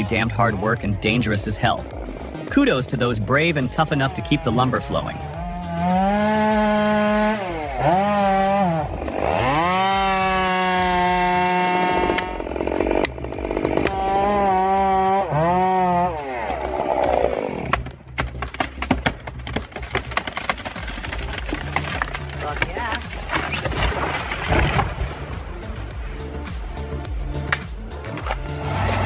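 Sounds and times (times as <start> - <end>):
chainsaw at full throttle: 0.0 - 2.5, 3.5 - 18.0, 28.2 - 29.0.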